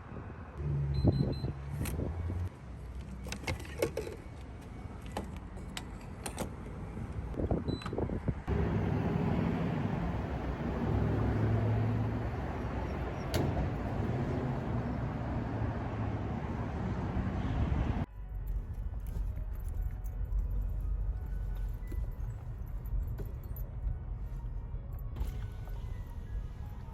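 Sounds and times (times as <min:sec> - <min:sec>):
car running noise: 0:08.5 - 0:18.1.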